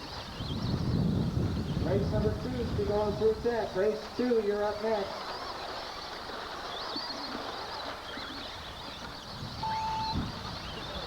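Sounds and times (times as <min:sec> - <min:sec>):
short electronic beep: 0:09.6 - 0:10.3.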